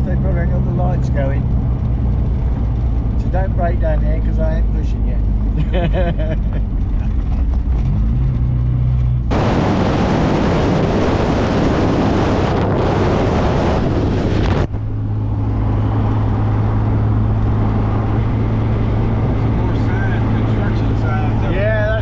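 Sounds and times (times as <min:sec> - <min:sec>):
car engine running: 0:00.0 - 0:22.0
loud rushing noise: 0:09.3 - 0:14.7.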